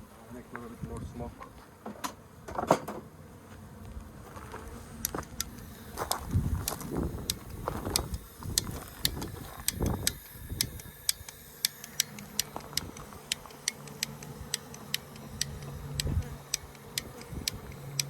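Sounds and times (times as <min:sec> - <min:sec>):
bee smoker bellows puffs: 0:00.3 - 0:18.0
steady high clicking: 0:05.0 - 0:18.0.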